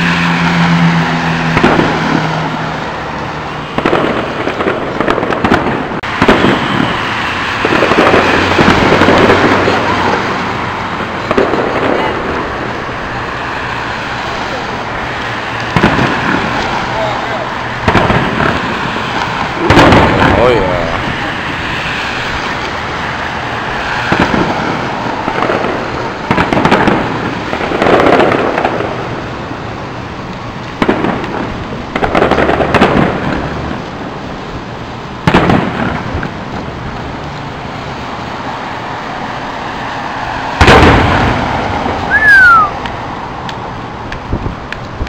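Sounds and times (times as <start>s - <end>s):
firework booms with crackling: 1.4s - 45.0s
falling firework whistle: 42.0s - 42.8s.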